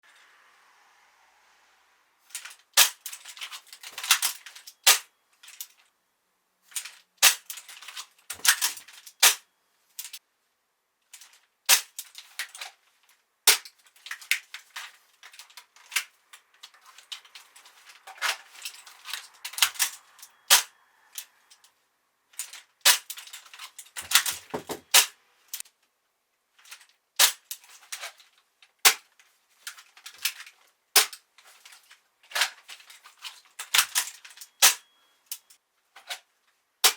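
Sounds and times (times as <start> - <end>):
toy gun mechanical clicks: 8.3 - 9.4, 19.0 - 21.6.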